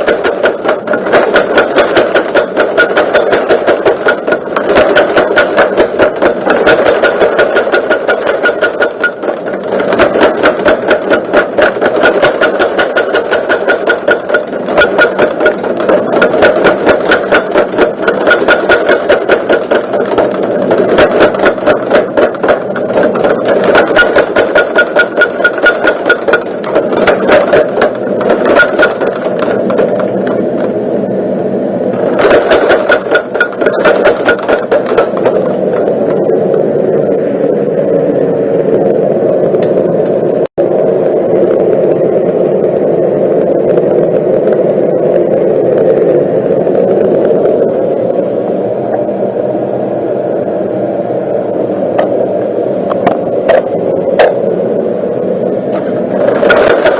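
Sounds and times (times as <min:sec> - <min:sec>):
rapid even knocking: 0:00.0 - 0:30.8, 0:31.9 - 0:36.3, 0:56.2 - 0:56.9
machine motor running: 0:00.0 - 0:49.0, 0:55.4 - 0:56.9.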